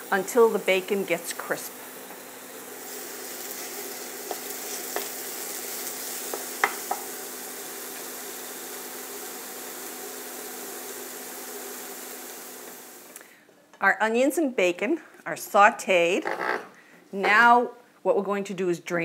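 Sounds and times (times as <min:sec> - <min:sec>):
bacon sizzling in a frying pan: 0:00.0 - 0:13.2.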